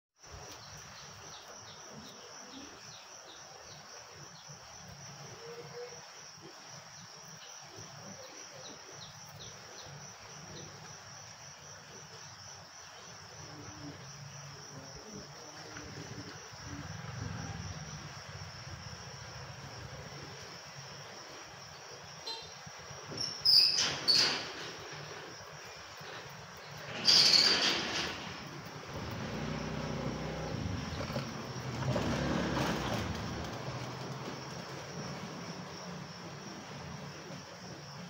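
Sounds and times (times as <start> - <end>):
insects droning: 0.2 - 38.0
small birds chirping: 7.0 - 10.9, 28.9 - 33.6.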